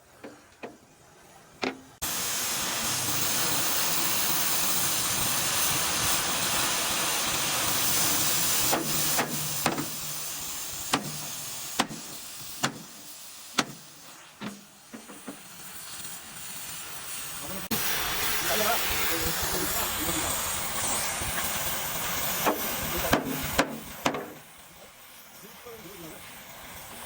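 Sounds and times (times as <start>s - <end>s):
loud steady hiss: 0.0s - 27.0s
sharp knocks: 1.6s - 1.9s.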